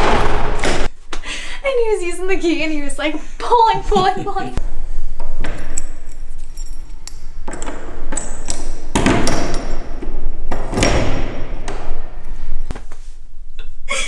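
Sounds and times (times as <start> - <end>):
key clinking in lock: 5.7 - 7.1.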